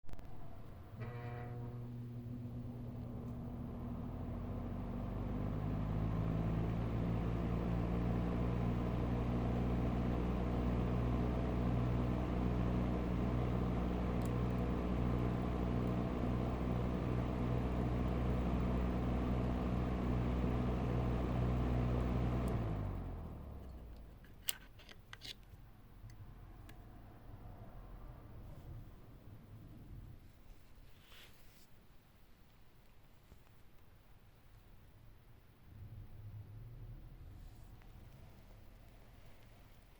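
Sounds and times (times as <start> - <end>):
ventilation fan motor hum: 0.2 - 24.4.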